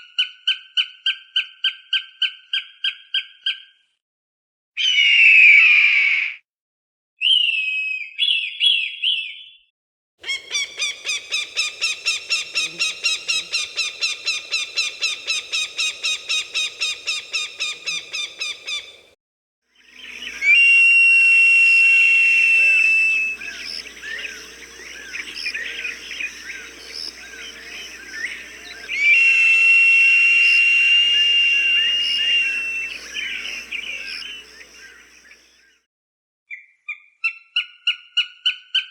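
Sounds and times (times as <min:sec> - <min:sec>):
hawk calling: 0:10.2 - 0:19.1, 0:19.9 - 0:35.4
small birds chirping: 0:10.2 - 0:19.1, 0:19.8 - 0:20.7, 0:22.3 - 0:35.5
high steady whistles: 0:10.3 - 0:19.1, 0:19.8 - 0:35.5.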